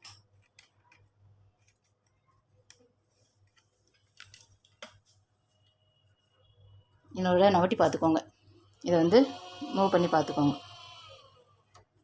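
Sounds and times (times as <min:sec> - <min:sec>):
faint clicks and taps of machine parts: 0:00.0 - 0:05.8.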